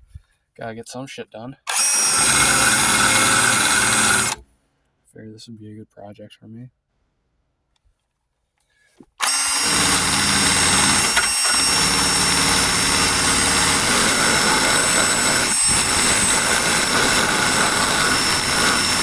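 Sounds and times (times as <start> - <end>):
power tool stripping wheel whining: 1.7 - 4.4, 9.2 - 19.0.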